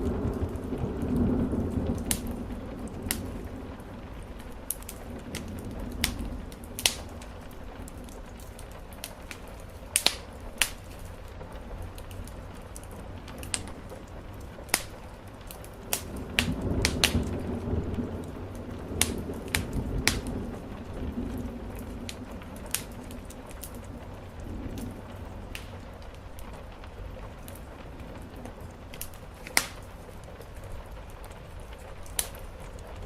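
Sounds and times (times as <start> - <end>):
rain on a roof: 0.0 - 33.0
wood fire crackling and popping: 0.0 - 33.0.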